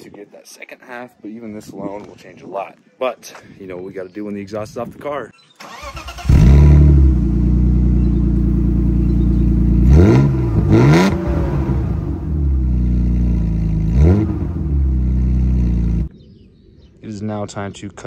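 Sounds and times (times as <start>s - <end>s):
loud open-piped car engine revving: 6.2s - 16.1s.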